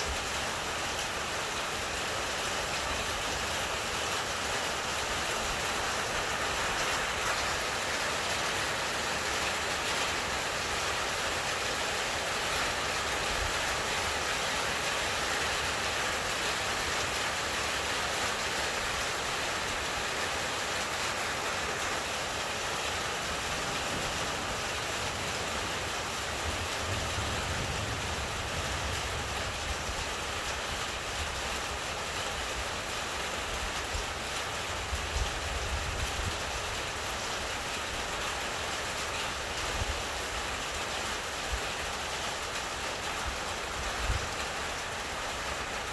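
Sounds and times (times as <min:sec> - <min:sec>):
heavy rain pouring: 0:00.0 - 0:45.9
thunder rumbling: 0:22.0 - 0:31.4.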